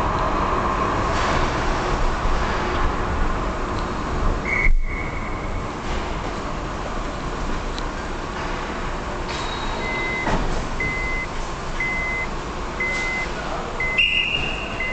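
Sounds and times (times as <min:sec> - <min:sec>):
rumble of vehicles: 0:00.0 - 0:14.9
reversing alarm beeping: 0:09.6 - 0:14.9.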